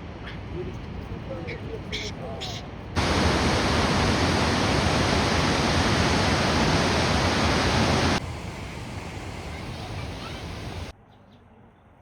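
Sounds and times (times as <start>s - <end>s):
rushing waterfall: 3.0s - 10.9s.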